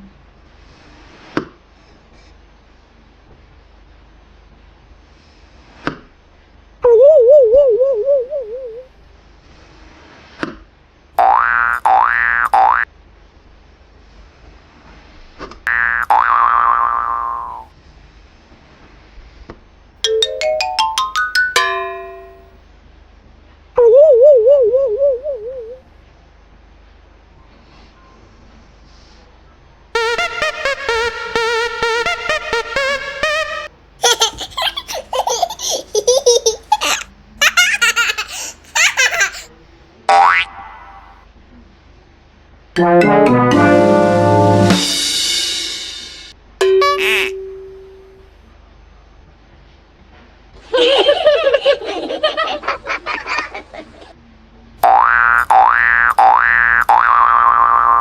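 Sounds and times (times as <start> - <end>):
baby giggling: 34.0 - 39.5.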